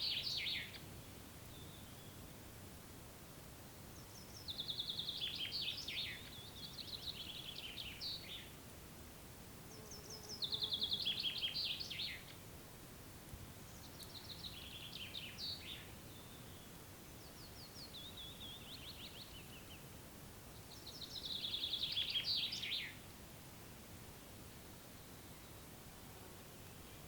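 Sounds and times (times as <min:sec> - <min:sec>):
songbird singing: 0:00.0 - 0:02.4, 0:03.9 - 0:08.6, 0:09.6 - 0:12.4, 0:13.6 - 0:23.1, 0:24.5 - 0:25.9.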